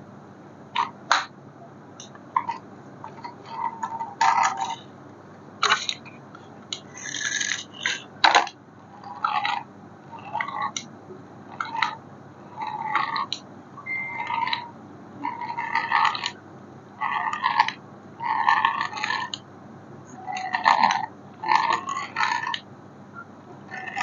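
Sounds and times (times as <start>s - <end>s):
low steady hum: 0.0s - 24.0s
plastic objects clicking and rattling: 5.6s - 8.6s.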